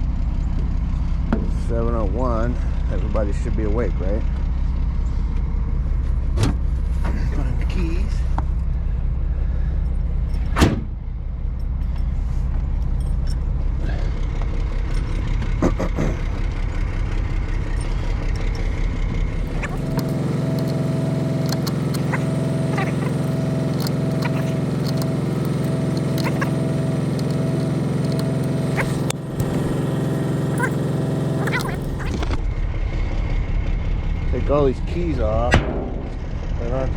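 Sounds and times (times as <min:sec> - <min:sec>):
engine idling: 0:00.0 - 0:36.9
hum with pulsing higher tone: 0:04.2 - 0:36.9.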